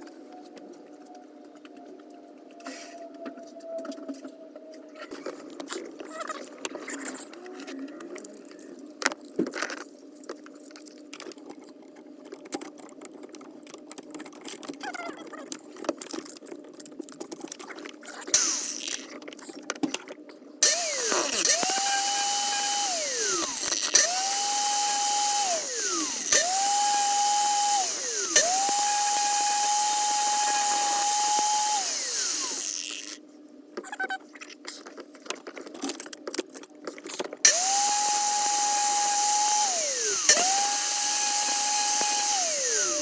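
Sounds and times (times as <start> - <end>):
electric power tool whining: 18.4 - 19.1, 20.6 - 33.2, 37.5 - 43.0.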